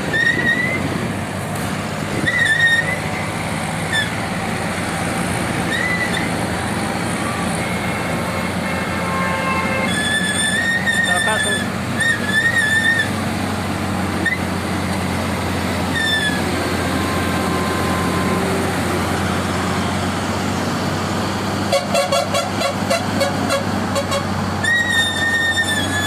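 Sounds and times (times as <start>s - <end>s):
heavy truck engine running: 0.0s - 26.0s
high-pitched horn blast: 7.6s - 11.7s, 21.7s - 24.3s.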